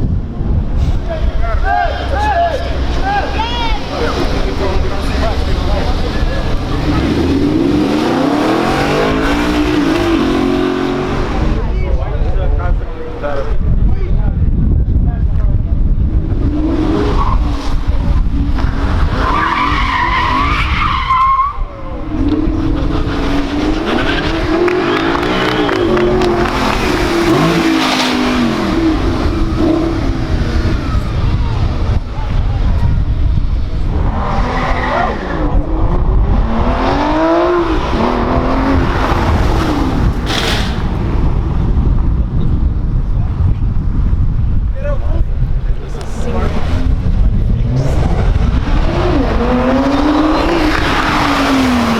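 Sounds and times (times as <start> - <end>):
sports car engines accelerating: 0.0 - 51.9
high wavering tyre squeal: 19.1 - 31.4.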